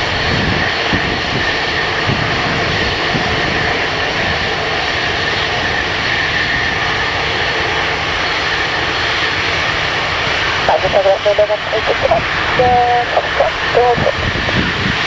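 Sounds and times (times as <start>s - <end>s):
airliner engines running: 0.0s - 15.0s.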